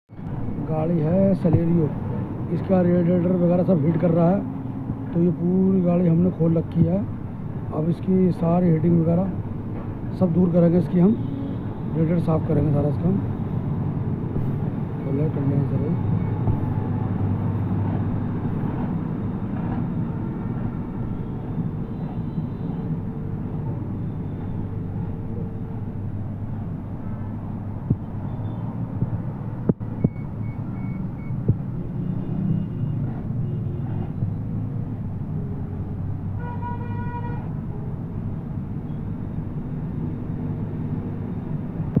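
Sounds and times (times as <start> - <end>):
horn honk: 36.4 - 37.5.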